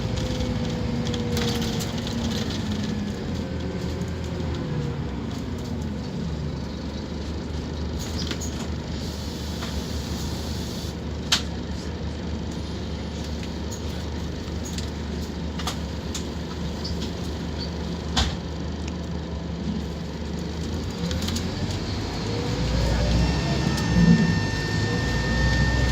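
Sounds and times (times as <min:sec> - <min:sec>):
diesel engine idling: 0:00.0 - 0:25.9
drivetrain whine: 0:18.6 - 0:25.9.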